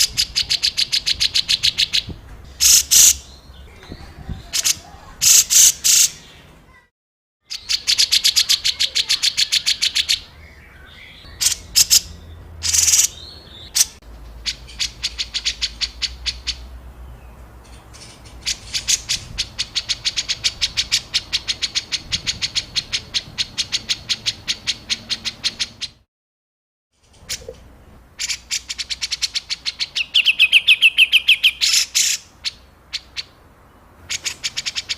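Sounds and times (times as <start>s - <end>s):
songbird harsh rapid call: 0.0s - 3.4s, 4.2s - 6.3s, 7.5s - 16.7s, 28.2s - 33.4s.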